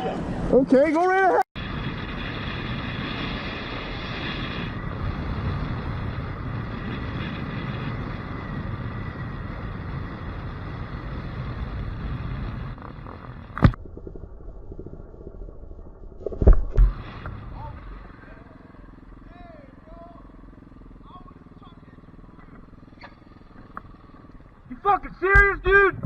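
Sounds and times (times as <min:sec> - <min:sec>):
motorcycle engine: 0:01.6 - 0:15.3, 0:16.7 - 0:26.0
wind rushing over microphone: 0:01.6 - 0:18.3.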